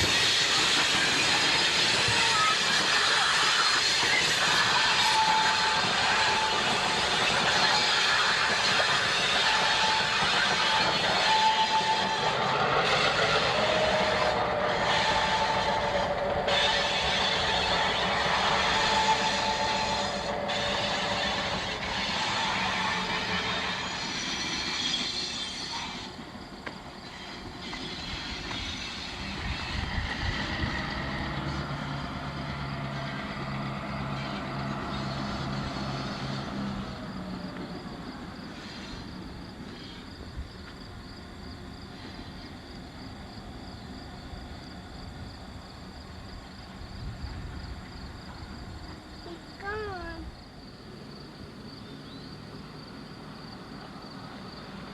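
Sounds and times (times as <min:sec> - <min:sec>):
freight train cars clattering: 0:00.0 - 0:41.0
train wheel squeal: 0:00.0 - 0:50.2, 0:51.6 - 0:54.9.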